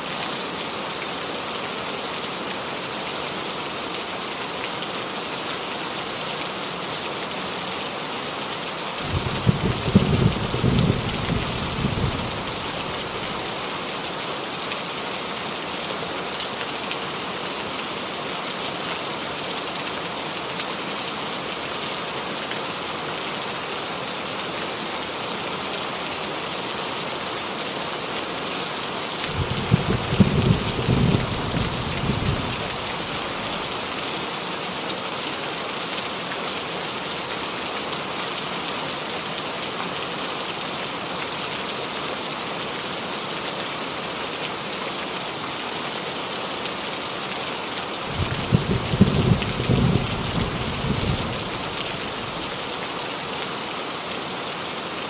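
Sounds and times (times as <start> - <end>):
rain on a roof: 0.0 - 55.0
thunder rumbling: 9.1 - 13.0, 29.3 - 33.7, 48.1 - 52.4.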